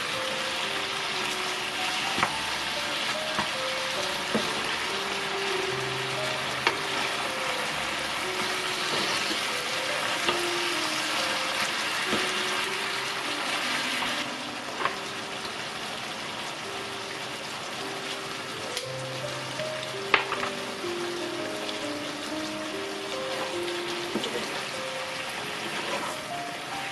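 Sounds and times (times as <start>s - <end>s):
meat sizzling in a frying pan: 0.0s - 26.9s
soft background music: 0.0s - 26.9s
wooden spatula knocking pan: 2.1s - 4.9s, 11.6s - 12.6s.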